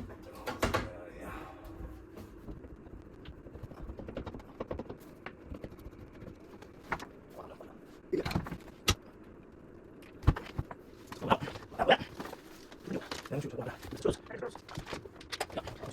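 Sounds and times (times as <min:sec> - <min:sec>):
tools and parts clicking and knocking: 0:14.6 - 0:15.9.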